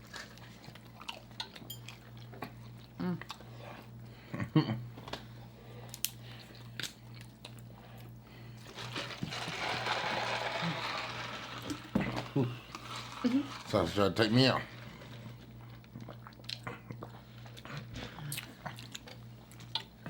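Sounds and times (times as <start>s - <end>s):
chewing and biting: 0.0s - 3.9s, 14.9s - 20.0s.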